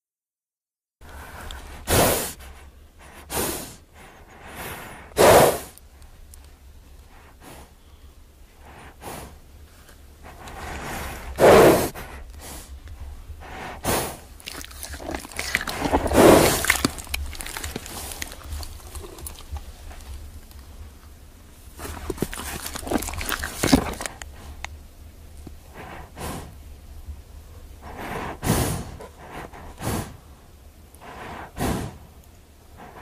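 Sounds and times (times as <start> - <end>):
horse breathing: 1.0 - 5.9, 7.0 - 21.0, 21.6 - 24.7, 25.6 - 26.6, 27.8 - 30.4, 31.0 - 32.1, 32.7 - 33.0
horse snorting: 1.7 - 5.8, 10.3 - 12.6, 13.4 - 20.2, 27.8 - 30.2, 31.1 - 32.0.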